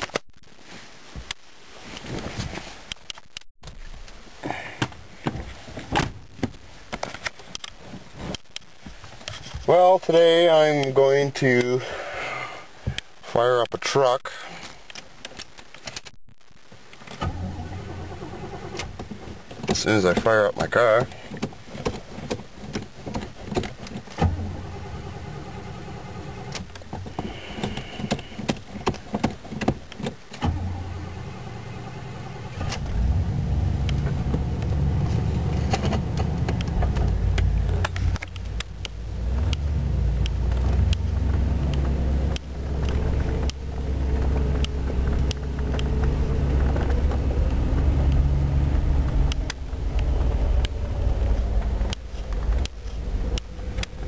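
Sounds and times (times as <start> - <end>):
car engine from inside cabin: 24.2 - 26.7, 30.4 - 54.0.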